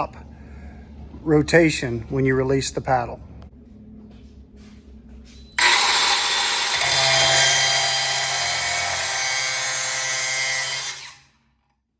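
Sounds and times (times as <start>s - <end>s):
angle grinder on metal: 5.6s - 11.3s.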